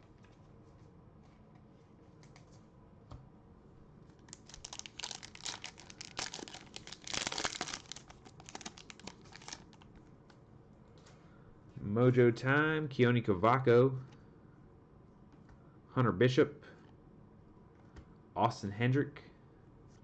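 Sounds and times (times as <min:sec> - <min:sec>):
foil wrapper tearing and crinkling: 0:04.3 - 0:09.8.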